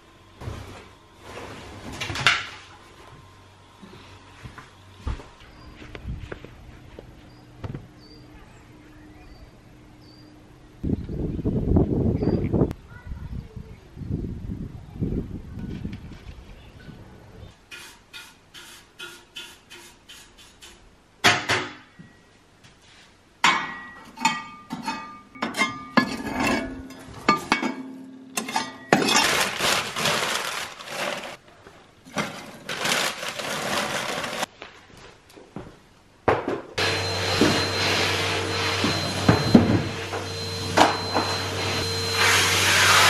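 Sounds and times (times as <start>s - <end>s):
dishes and glassware clinking: 23.4s - 29.4s
vacuum cleaner humming: 36.8s - 43.0s.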